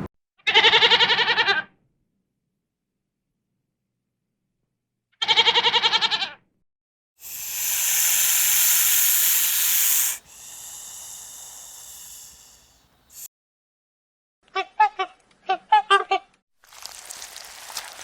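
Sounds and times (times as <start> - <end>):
animal bleating: 0.5 - 1.6, 5.2 - 6.4
loud hiss: 7.2 - 13.3.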